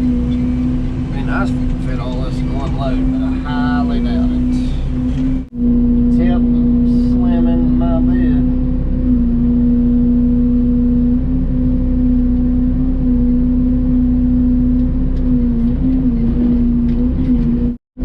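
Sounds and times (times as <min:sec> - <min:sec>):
mini excavator engine running: 0:00.0 - 0:08.1.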